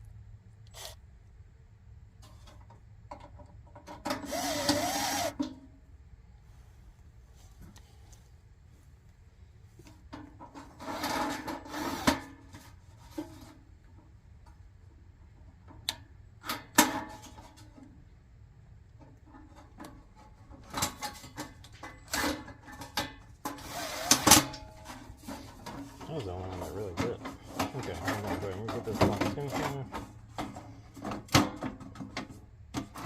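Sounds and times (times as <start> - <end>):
rubbing and scraping of parts: 2.2 - 5.4, 9.8 - 14.0, 19.0 - 33.0.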